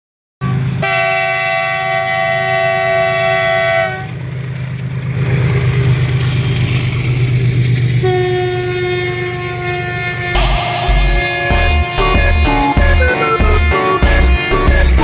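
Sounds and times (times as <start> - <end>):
train horn blast: 0.4 - 4.2, 8.0 - 15.0
locomotive drone: 0.4 - 15.0.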